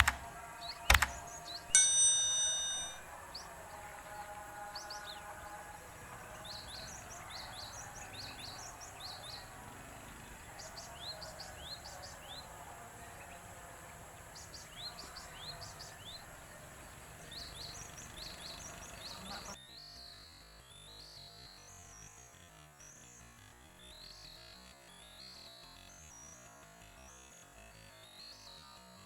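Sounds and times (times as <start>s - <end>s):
faint background hiss: 0.0s - 19.6s
small birds chirping: 0.0s - 19.6s.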